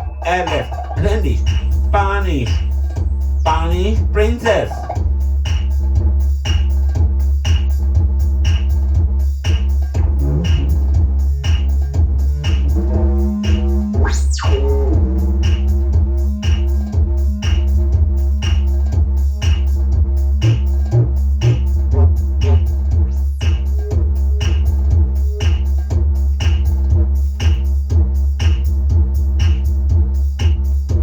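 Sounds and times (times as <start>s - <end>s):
electronic dance music: 0.0s - 31.0s.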